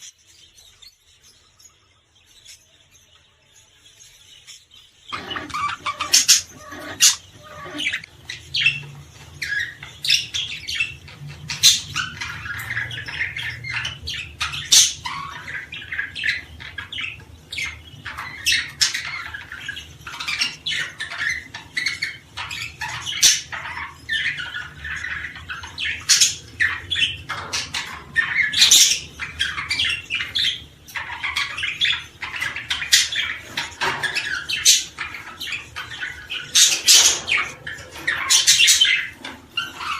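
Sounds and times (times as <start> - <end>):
birds chirping and squawking: 0.0 - 39.9.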